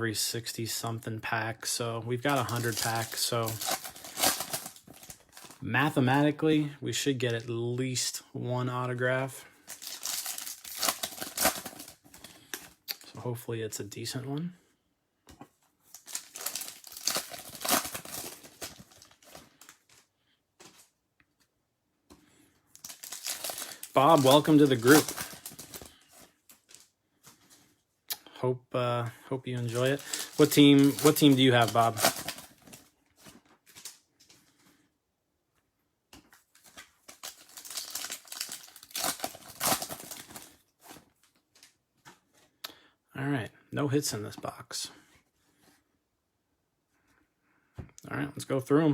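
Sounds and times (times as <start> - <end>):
foil wrappers crinkling: 2.2 - 5.6, 9.6 - 12.7, 15.9 - 20.9, 22.7 - 27.6, 29.6 - 34.6, 36.4 - 41.8.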